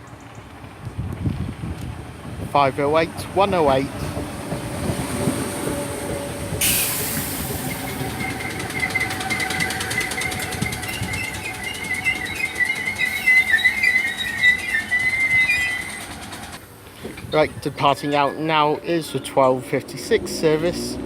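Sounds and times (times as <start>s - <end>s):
train air hiss: 4.0s - 17.3s
high brake squeal: 6.6s - 16.6s.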